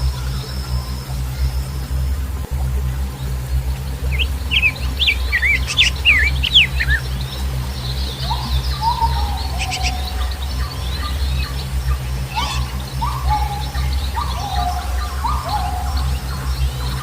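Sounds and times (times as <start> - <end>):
birds chirping and trilling: 0.0 - 17.0
low rumble: 0.0 - 17.0
drawn-out bird whistle: 4.1 - 17.0.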